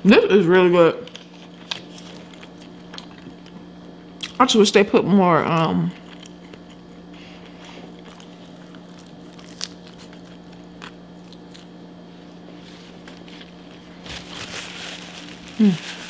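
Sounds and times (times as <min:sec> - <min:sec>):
steady low hum: 0:00.0 - 0:16.0
person chewing food: 0:01.1 - 0:04.4, 0:06.0 - 0:14.4.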